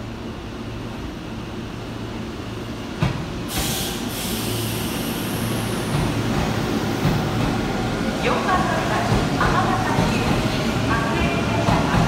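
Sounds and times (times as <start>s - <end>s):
air hiss: 3.5s - 5.9s.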